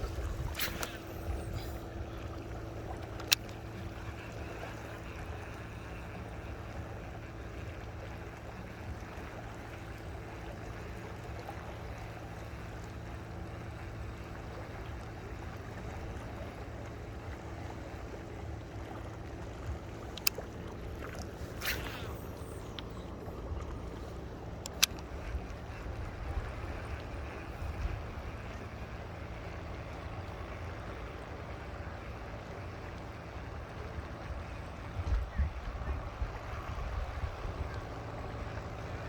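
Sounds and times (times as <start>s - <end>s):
small boat engine humming: 0.0s - 39.0s
sharp clicks: 24.6s - 25.1s.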